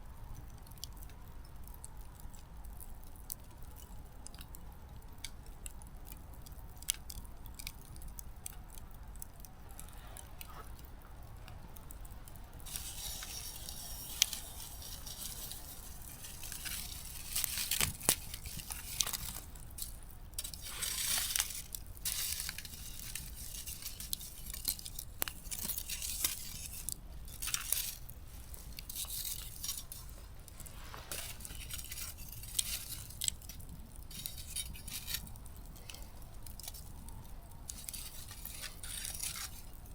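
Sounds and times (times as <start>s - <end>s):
wood fire crackling and popping: 0.0s - 39.9s
fire flaring up: 5.3s - 39.9s
fire hissing: 12.5s - 39.9s.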